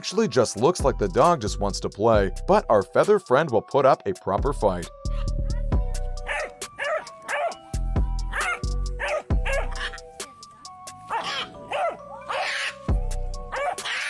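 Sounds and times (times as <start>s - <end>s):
background music with low beat: 0.0s - 14.0s
dog barking: 6.2s - 7.6s, 8.3s - 10.0s, 11.1s - 12.8s, 13.5s - 14.0s.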